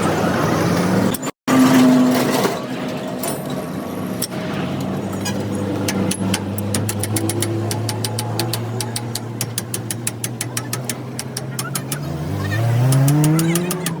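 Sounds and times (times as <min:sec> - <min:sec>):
scattered clicks: 0:05.9 - 0:12.1, 0:12.8 - 0:14.0.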